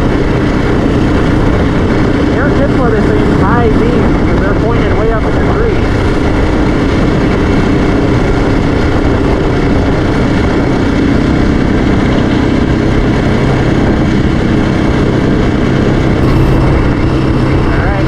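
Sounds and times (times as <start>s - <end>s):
atv engine running: 0.0s - 18.0s
loud rushing noise: 16.2s - 18.0s.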